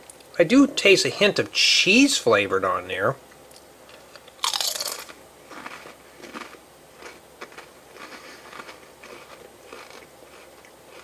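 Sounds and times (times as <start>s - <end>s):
chewing crunches: 3.5s - 11.0s
crisp crunch: 3.9s - 11.0s.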